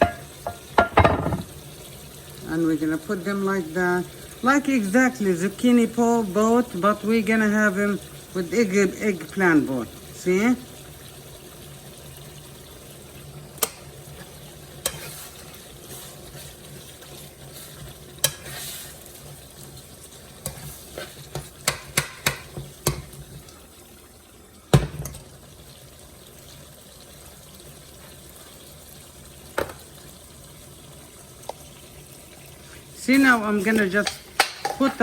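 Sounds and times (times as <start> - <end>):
utensils knocking against cookware: 0.0 - 1.5, 21.3 - 23.1, 33.9 - 35.0.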